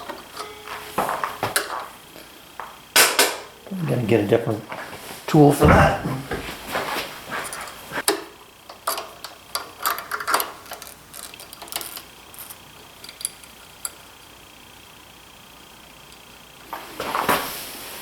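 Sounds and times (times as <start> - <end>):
hand tools and metal parts clicking: 7.4 - 14.3.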